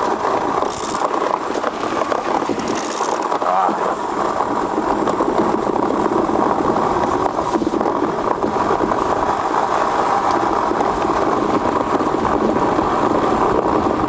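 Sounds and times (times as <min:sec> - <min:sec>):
ice yacht runners rumbling on ice: 0:00.0 - 0:14.0.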